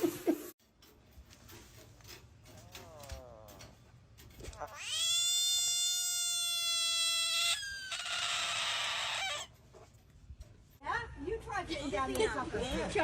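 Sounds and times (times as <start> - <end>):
cat meowing and yowling: 4.7 - 9.5.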